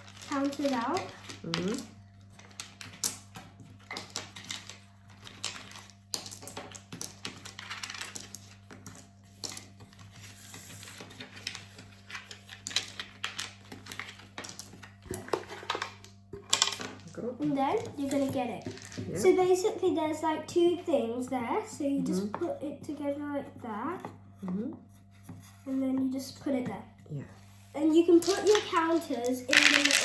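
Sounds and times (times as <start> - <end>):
plastic counters clicking: 0.0 - 10.1, 10.8 - 19.0, 28.0 - 30.0.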